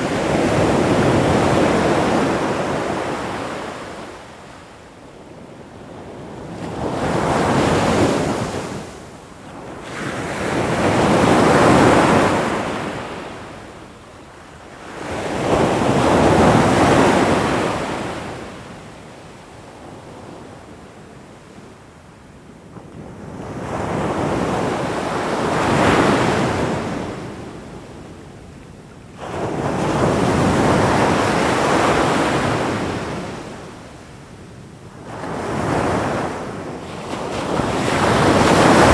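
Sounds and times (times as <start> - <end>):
ocean waves breaking: 37.1 - 38.9.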